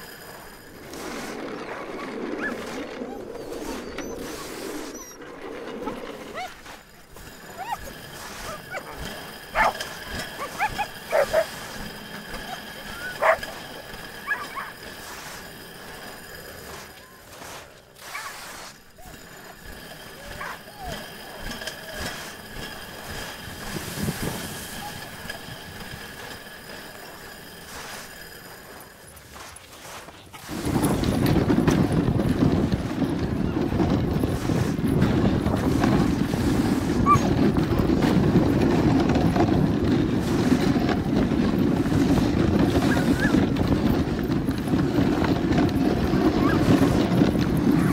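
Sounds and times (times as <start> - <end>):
sled dogs yipping and whining: 0.0 - 47.9
wind on microphone: 30.5 - 47.9.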